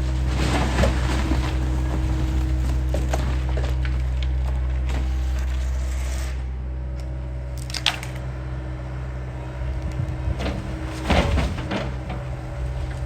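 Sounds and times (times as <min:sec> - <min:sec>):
wood crunching and splintering: 0:00.0 - 0:05.2, 0:07.6 - 0:08.3, 0:09.9 - 0:13.0
excavator diesel engine running: 0:00.0 - 0:13.0.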